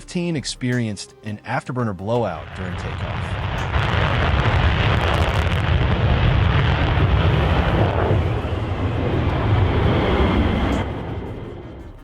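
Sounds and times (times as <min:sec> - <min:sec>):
jet engines at full power: 0:02.4 - 0:12.0.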